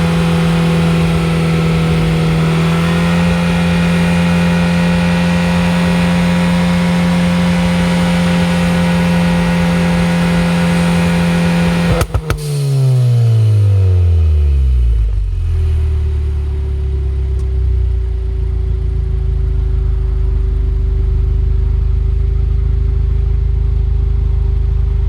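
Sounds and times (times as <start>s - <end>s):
exhaust pops and crackles: 0.0s - 13.6s
car engine held at steady revs: 0.0s - 25.0s.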